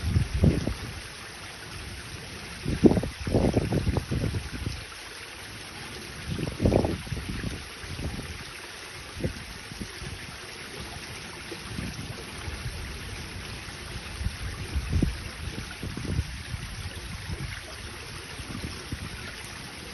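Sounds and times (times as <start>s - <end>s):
low thumps and splashes: 0.0s - 1.0s
running water rushing: 0.0s - 19.9s.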